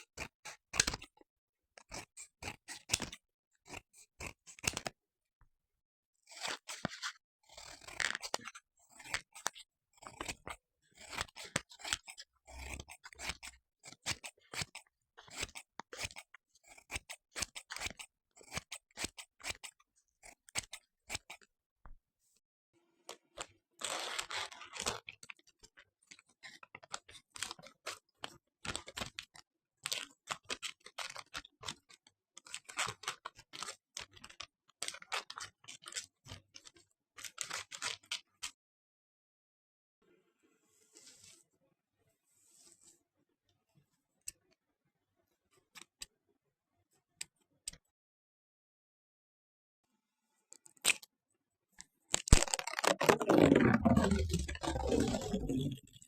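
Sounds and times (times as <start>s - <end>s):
close-up clicks and crackles: 52.1s - 56.0s.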